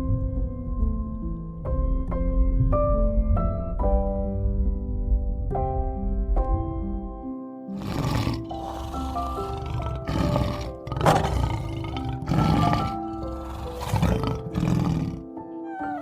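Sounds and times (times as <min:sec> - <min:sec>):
background music with held notes: 0:00.0 - 0:16.0
big cat roaring: 0:07.8 - 0:15.3.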